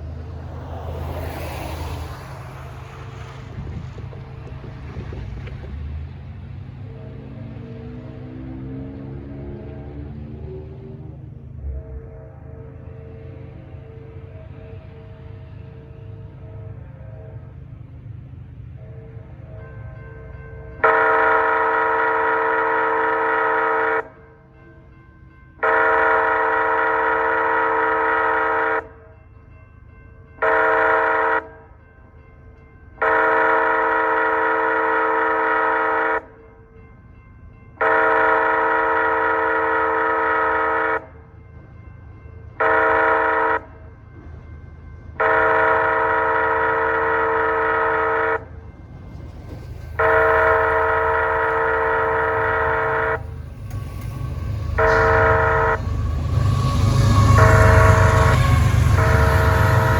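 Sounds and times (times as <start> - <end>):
train rumble: 0.0 - 59.9
locomotive air horn blasts: 20.8 - 24.1, 25.6 - 28.8, 30.4 - 31.5, 33.0 - 36.3, 37.8 - 41.1, 42.6 - 43.7, 45.2 - 48.5, 50.0 - 59.9.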